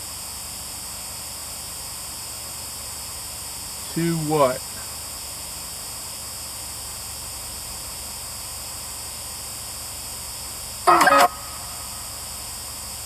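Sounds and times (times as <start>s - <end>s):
radio static hiss: 3.8s - 5.1s, 10.6s - 13.0s.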